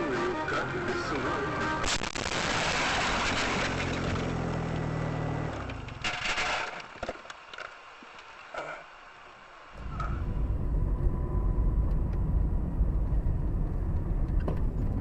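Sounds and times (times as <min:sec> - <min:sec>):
harsh crash noise: 0:01.8 - 0:04.4
low engine hum: 0:09.8 - 0:15.0.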